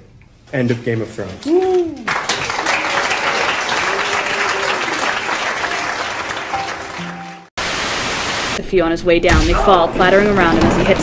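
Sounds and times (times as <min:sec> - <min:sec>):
people clapping: 0:01.1 - 0:07.5.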